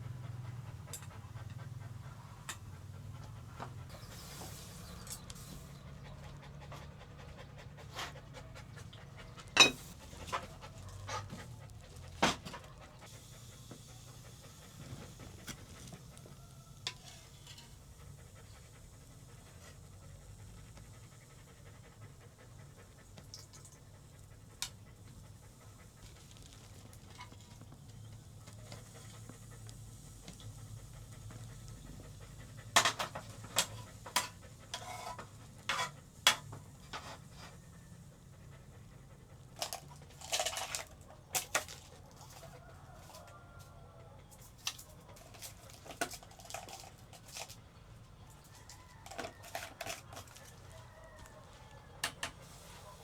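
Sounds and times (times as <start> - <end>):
dog panting: 0.0 - 53.0.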